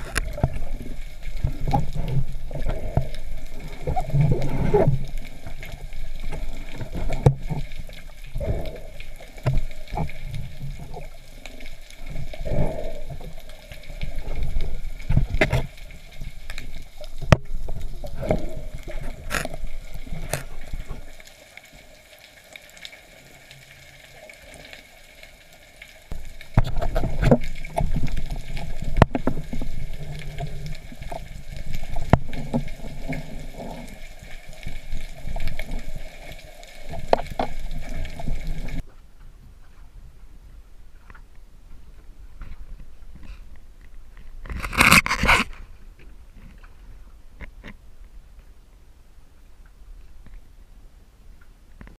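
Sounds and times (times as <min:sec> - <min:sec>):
sharp underwater clicks and knocks: 0:00.0 - 0:21.1, 0:26.1 - 0:33.9, 0:42.4 - 0:46.8, 0:47.4 - 0:47.8
underwater rushing and gurgling: 0:00.0 - 0:51.9.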